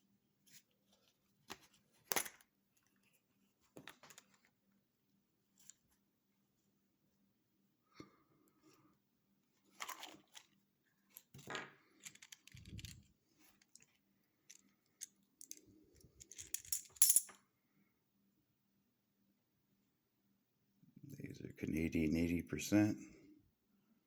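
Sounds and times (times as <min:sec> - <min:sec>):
coins clinking: 0:16.2 - 0:17.4.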